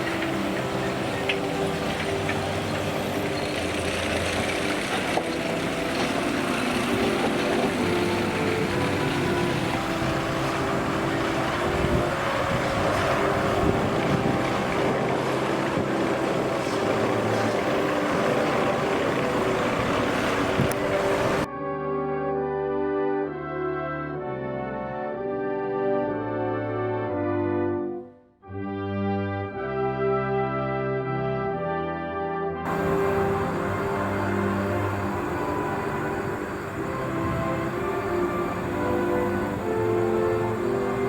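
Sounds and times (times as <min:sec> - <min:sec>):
harvester engine running: 0:00.0 - 0:21.5, 0:32.7 - 0:41.0
brass music: 0:00.0 - 0:41.0.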